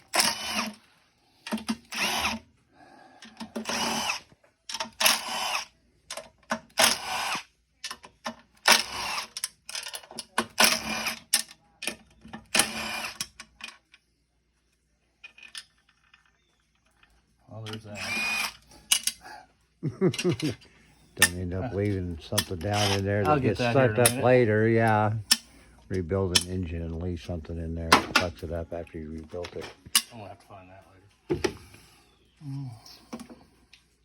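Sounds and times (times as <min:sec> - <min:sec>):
power tool motor whining: 0:00.0 - 0:00.8, 0:01.8 - 0:02.4, 0:03.5 - 0:04.3, 0:05.0 - 0:05.7, 0:06.8 - 0:07.5, 0:08.7 - 0:09.4, 0:12.6 - 0:13.2, 0:17.9 - 0:18.7, 0:22.6 - 0:23.3.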